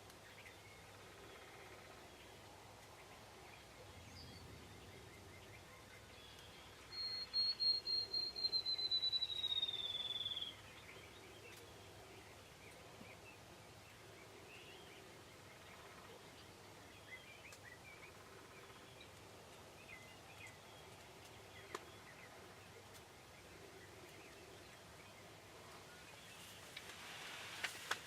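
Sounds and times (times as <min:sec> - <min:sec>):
faint outdoor background: 0:00.0 - 0:28.0
songbird trilled song: 0:03.6 - 0:13.4.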